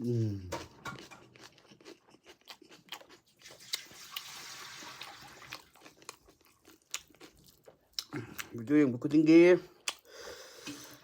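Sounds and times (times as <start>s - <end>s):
crunching and chewing: 0.2s - 8.6s.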